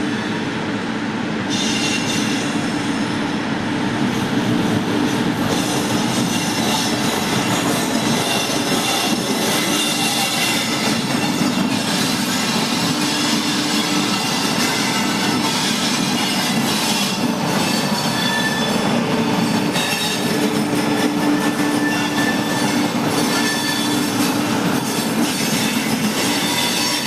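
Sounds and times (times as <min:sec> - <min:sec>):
train rumbling on rails: 0:00.0 - 0:27.0
metallic wheel squeal: 0:06.0 - 0:27.0.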